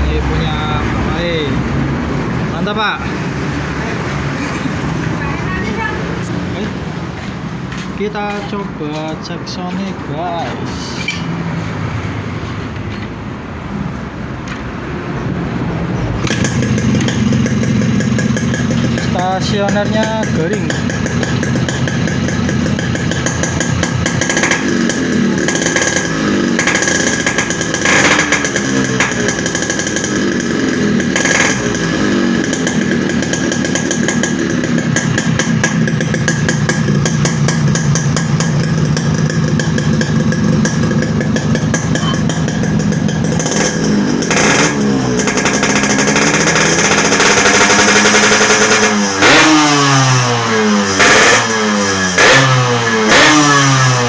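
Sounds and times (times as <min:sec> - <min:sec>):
motorcycle engine revving: 0:16.2 - 0:54.0.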